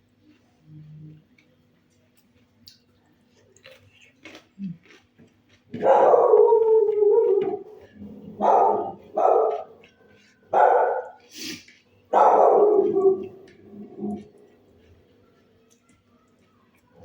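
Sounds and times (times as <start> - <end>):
dog barking: 5.8 - 9.8, 10.5 - 11.3, 12.1 - 14.6.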